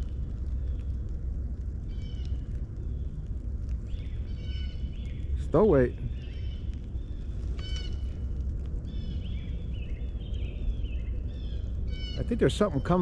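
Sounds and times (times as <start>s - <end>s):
steady low rumble: 0.0s - 13.0s
birds chirping: 3.9s - 13.0s.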